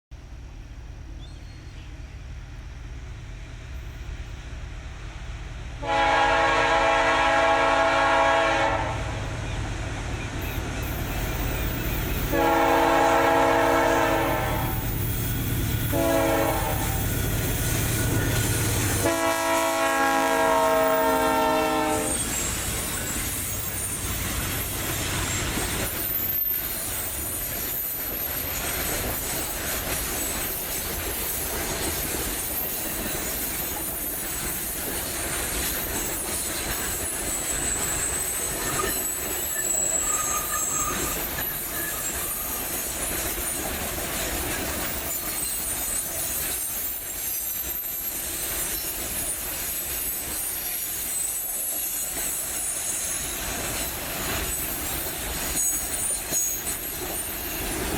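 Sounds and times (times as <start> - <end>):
freight train rumbling on rails: 0.1 - 57.9
high thin wheel squeals: 10.4 - 19.0, 19.9 - 57.9.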